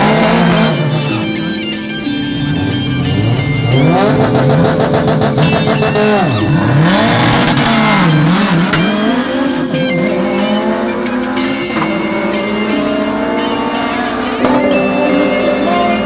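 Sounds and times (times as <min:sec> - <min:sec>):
background music: 0:00.0 - 0:16.0
car engine revving: 0:00.0 - 0:16.0
tire squeal: 0:02.2 - 0:14.4.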